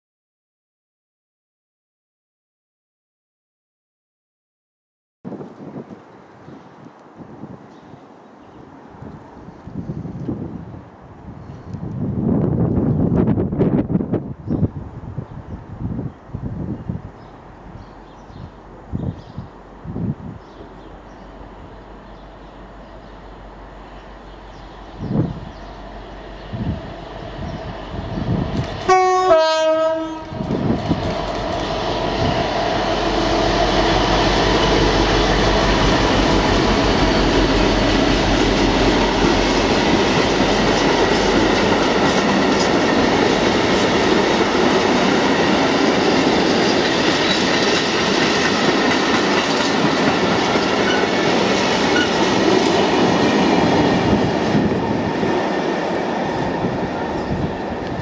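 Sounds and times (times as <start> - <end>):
two-tone locomotive horn: 28.8 - 30.5, 50.8 - 51.2
freight wagons running on rails: 37.3 - 58.0.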